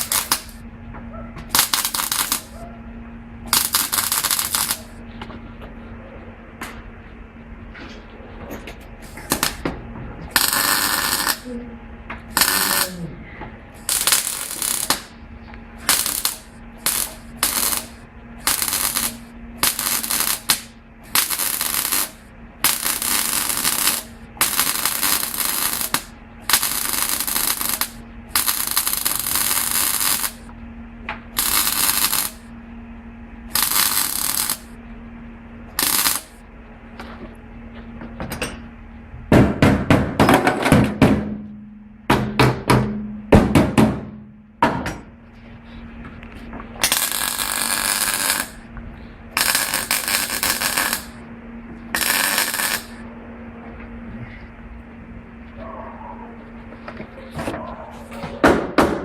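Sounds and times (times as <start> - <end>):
arc welding crackling hiss: 0.0 - 0.6, 1.4 - 2.6, 3.5 - 5.0, 9.0 - 9.6, 10.2 - 11.6, 12.3 - 13.1, 13.7 - 15.2, 15.8 - 30.5, 31.3 - 32.6, 33.5 - 34.8, 35.7 - 36.4, 46.8 - 48.6, 49.4 - 51.2, 51.9 - 53.0
steady hum: 0.0 - 59.0.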